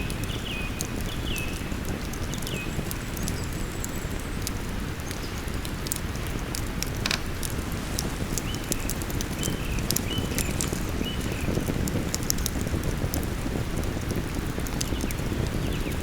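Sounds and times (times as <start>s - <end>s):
campfire crackling: 0.0s - 16.0s
river rushing: 7.0s - 11.2s.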